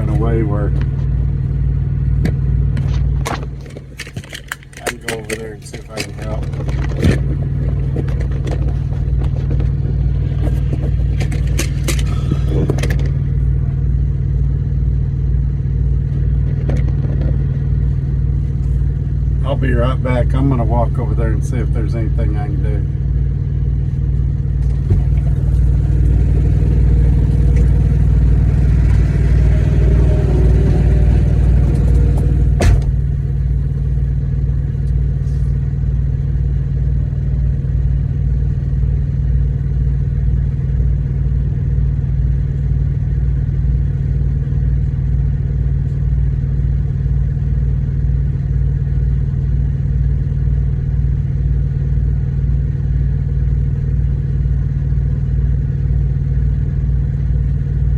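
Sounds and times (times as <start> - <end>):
truck engine idling: 0.0 - 57.9
rising whine: 5.8 - 19.8, 22.5 - 37.6.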